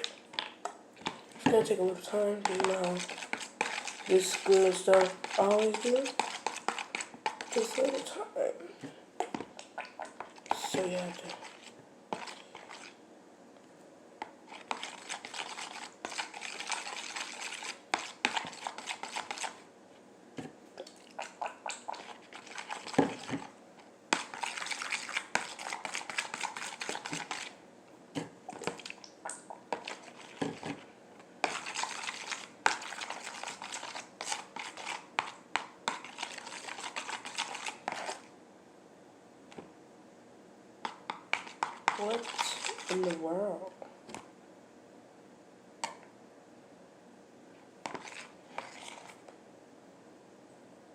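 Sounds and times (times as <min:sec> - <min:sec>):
utensil scraping a mixing container: 0:00.0 - 0:08.4, 0:09.2 - 0:13.0, 0:14.4 - 0:19.6, 0:21.2 - 0:23.5, 0:24.1 - 0:27.6, 0:29.7 - 0:38.3, 0:40.8 - 0:43.4, 0:47.8 - 0:49.3.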